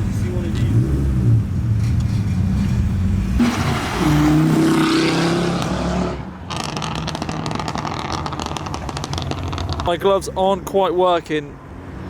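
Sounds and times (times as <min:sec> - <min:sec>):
car engine revving: 0:00.0 - 0:10.0
car engines in traffic: 0:00.0 - 0:12.0
crackly noise: 0:06.5 - 0:09.9.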